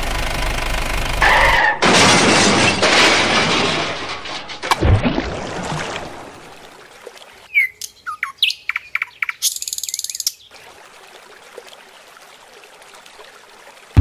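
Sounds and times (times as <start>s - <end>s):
birds chirping: 7.5s - 10.5s.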